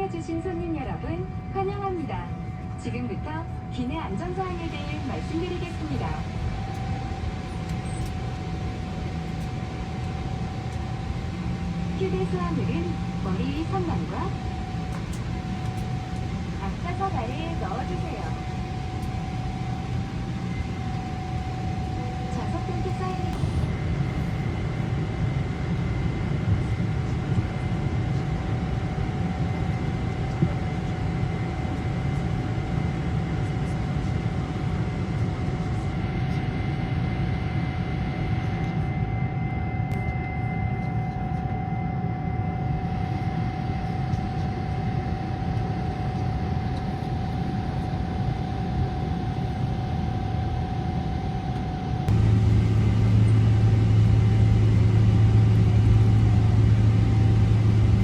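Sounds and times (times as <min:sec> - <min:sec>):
airliner cabin rumble and whine: 0:00.0 - 0:58.0
deep hum: 0:52.0 - 0:58.0.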